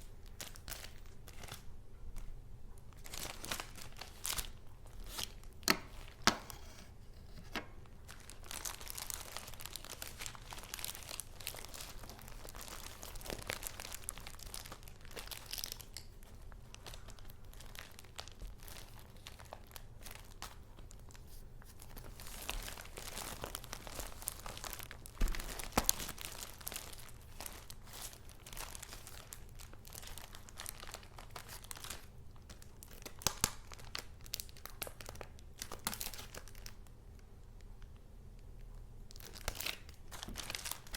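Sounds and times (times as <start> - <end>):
paper rustling and crinkling: 3.0 - 32.0, 39.2 - 40.9.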